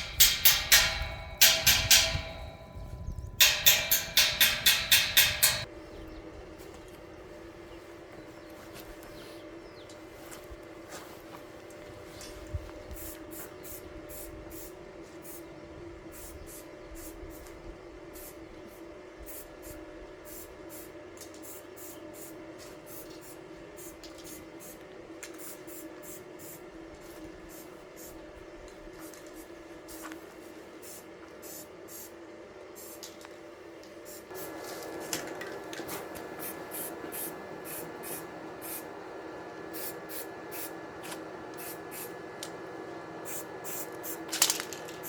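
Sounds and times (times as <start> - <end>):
welding arc crackling: 0.0 - 5.7, 34.2 - 45.0
steady hum: 0.0 - 45.0.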